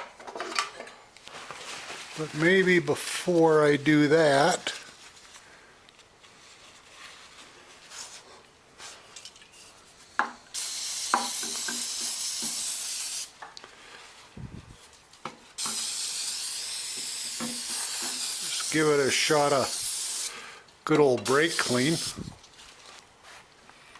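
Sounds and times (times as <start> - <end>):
aerosol spray hissing: 10.5 - 13.4, 15.6 - 20.4, 21.2 - 22.4.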